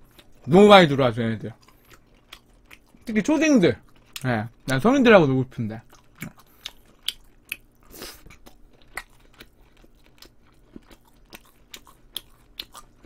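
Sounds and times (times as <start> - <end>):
chewing meat: 0.0 - 5.0, 5.7 - 13.0.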